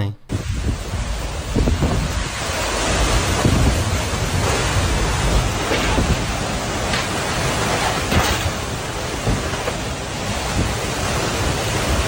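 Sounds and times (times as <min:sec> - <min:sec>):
low rumbling: 0:00.0 - 0:12.0
tornado wind and heavy rain: 0:00.3 - 0:12.0.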